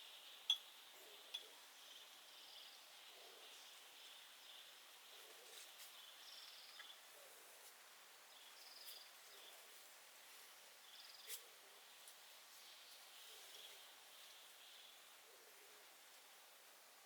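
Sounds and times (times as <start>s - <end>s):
soft hiss: 0.0s - 17.0s.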